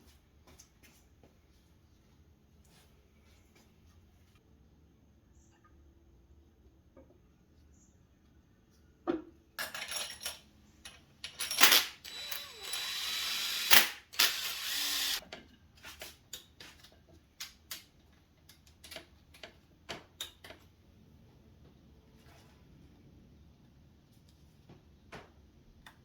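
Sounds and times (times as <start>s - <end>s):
tools clanking on metal: 9.6s - 12.4s.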